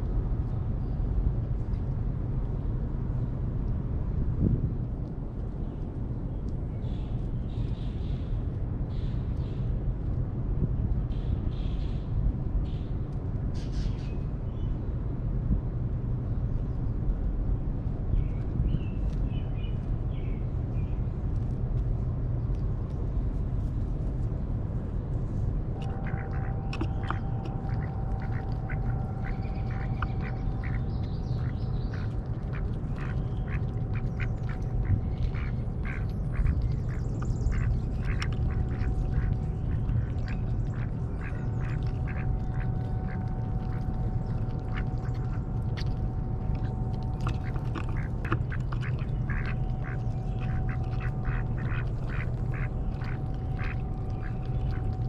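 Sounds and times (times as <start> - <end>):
steady low rumble: 0.0 - 55.0
ducks quacking: 25.8 - 55.0.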